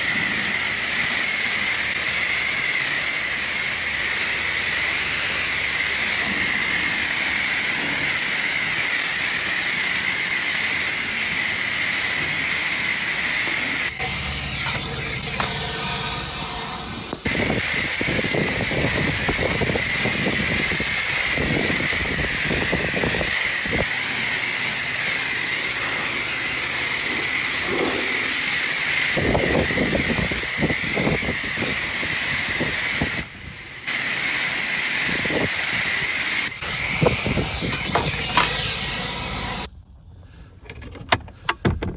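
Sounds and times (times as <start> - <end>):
pressure washer spraying water: 0.0 - 39.7.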